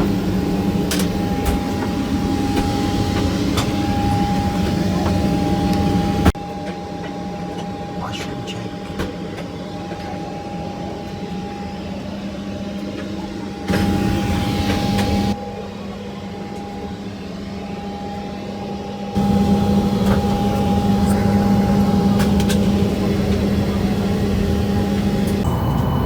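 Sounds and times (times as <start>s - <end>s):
constant whine: 0.0s - 16.8s, 17.8s - 26.0s
cabin ventilation hum: 19.2s - 26.0s.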